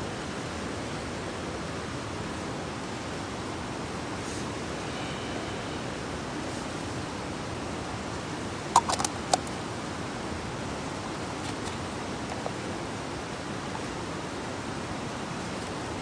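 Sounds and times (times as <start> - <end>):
sharp clicks: 8.8 - 9.5.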